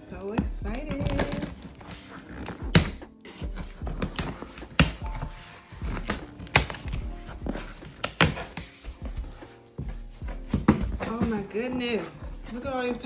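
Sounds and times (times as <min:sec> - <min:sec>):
cardboard rustling: 0:00.0 - 0:13.0
knocks and taps on cardboard box: 0:00.4 - 0:01.6, 0:05.9 - 0:13.0.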